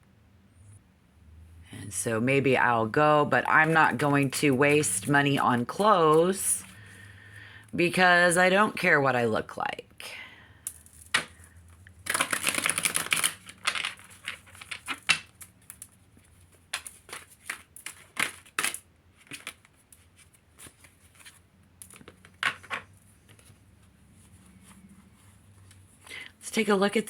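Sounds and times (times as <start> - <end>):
cards snapping and tapping: 10.7 - 11.4, 12.1 - 15.9
cards riffling: 10.7 - 23.5.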